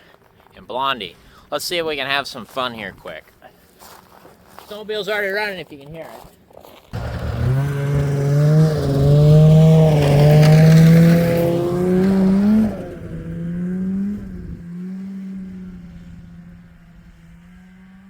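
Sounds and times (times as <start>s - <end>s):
snowmobile engine running: 7.0s - 18.0s.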